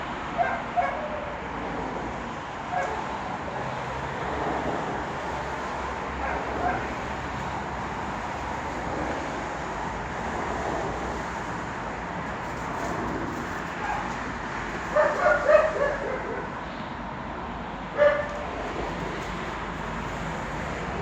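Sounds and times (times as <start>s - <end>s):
dog barking: 0.4s - 1.3s, 6.2s - 6.9s, 14.9s - 16.5s, 18.0s - 18.4s.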